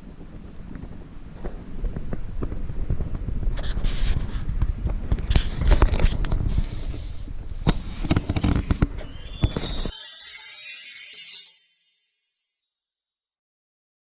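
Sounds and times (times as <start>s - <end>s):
low rumble: 0.0s - 8.0s.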